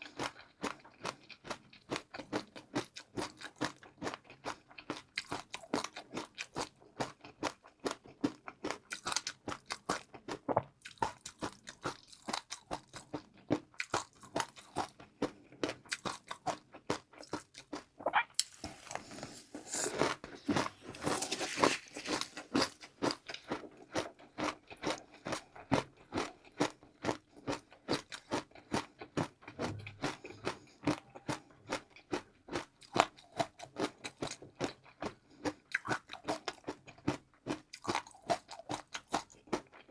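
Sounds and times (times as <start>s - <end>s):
chewing crunchy food: 0.0s - 39.9s.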